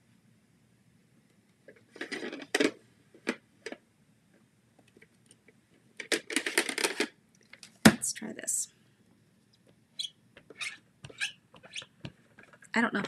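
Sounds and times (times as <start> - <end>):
plastic cases clicking and clattering: 1.7 - 3.8, 6.0 - 7.8.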